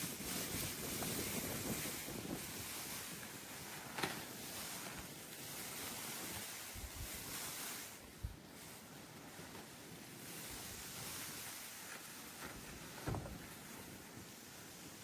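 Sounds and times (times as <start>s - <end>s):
wind buffeting microphone: 0.0s - 3.5s
blizzard wind blowing: 0.0s - 15.0s.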